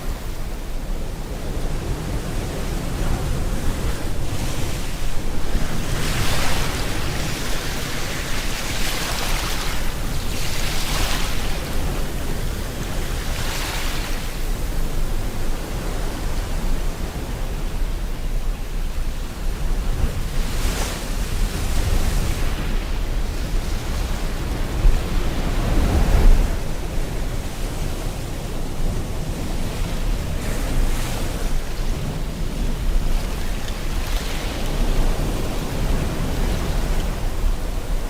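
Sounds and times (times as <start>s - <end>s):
ocean surf breaking: 0.0s - 14.9s, 20.2s - 38.0s.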